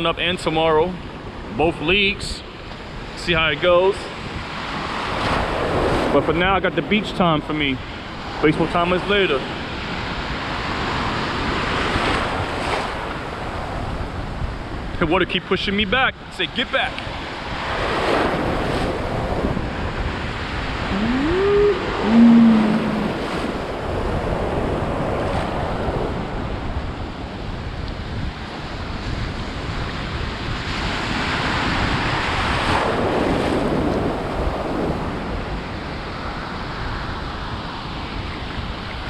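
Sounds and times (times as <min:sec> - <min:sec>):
ocean surf breaking: 0:16.8 - 0:26.6, 0:31.0 - 0:35.1
wind buffeting microphone: 0:17.4 - 0:35.6
short rising tone: 0:20.9 - 0:23.6.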